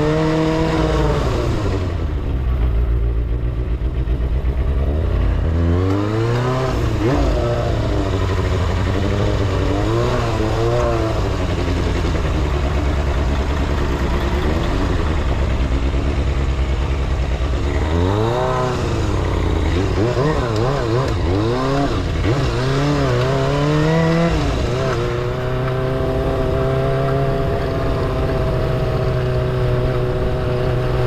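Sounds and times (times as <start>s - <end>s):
motorcycle engine idling and revving: 0.0s - 31.0s.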